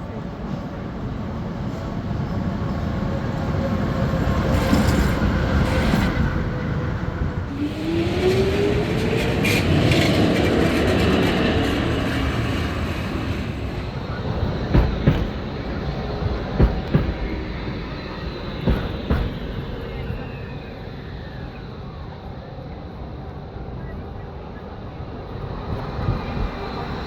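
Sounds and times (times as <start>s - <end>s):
tram passing: 0.0s - 27.0s
street traffic: 0.1s - 21.5s.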